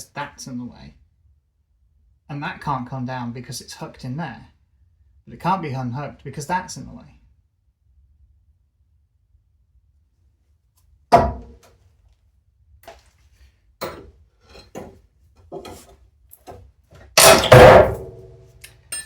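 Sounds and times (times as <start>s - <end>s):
metal knocks and clanks: 13.8s - 15.9s, 17.2s - 19.0s
loud sharp metal bang: 17.2s - 18.4s
loud metal clatter: 17.2s - 19.0s.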